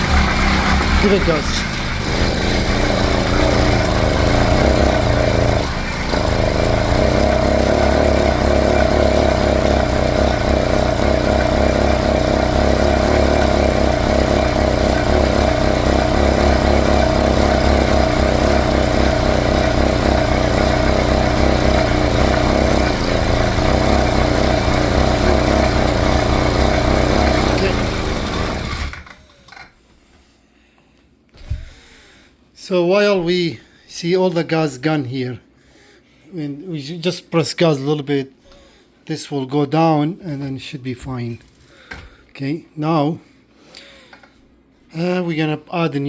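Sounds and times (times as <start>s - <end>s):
two-stroke engine running: 0.0s - 29.3s.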